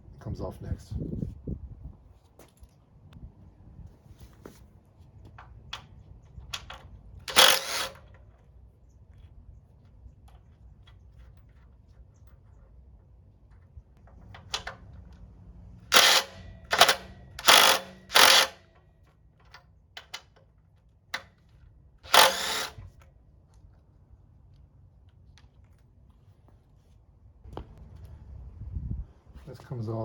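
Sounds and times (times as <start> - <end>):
ratchet wrench clicking: 7.3 - 8.1, 15.9 - 18.7, 22.1 - 22.8.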